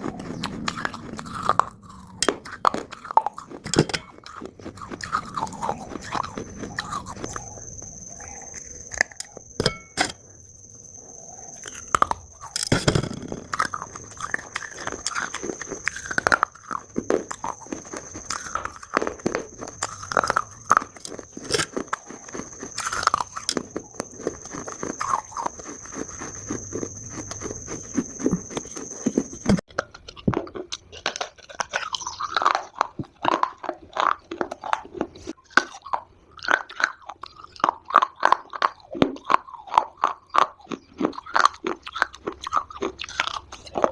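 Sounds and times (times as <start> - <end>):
thin high whine: 5.1 - 29.6
person crunching dry clay: 11.6 - 33.8.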